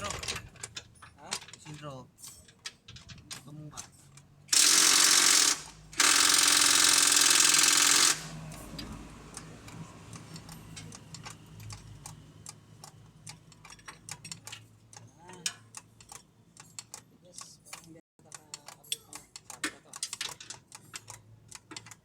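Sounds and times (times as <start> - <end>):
air tool bursts: 4.5 - 8.4.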